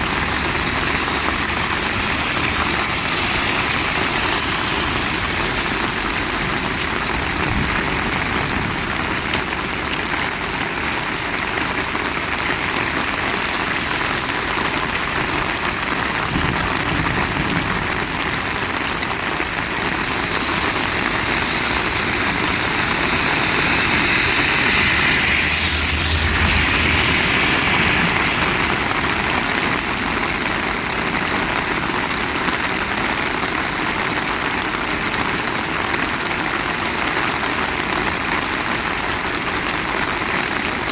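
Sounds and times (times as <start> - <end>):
heavy rain hiss: 0.0 - 40.9
low hum: 19.8 - 29.8.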